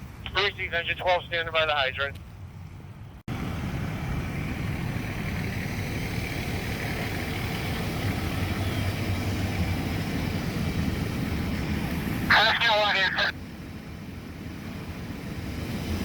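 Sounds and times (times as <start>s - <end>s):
fire engine idling: 0.0s - 16.0s.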